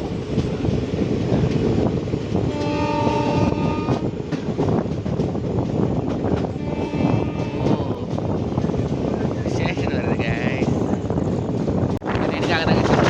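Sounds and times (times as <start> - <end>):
train wheels rumbling on rails: 0.0 - 13.0
train horn: 2.4 - 4.1, 6.6 - 8.0.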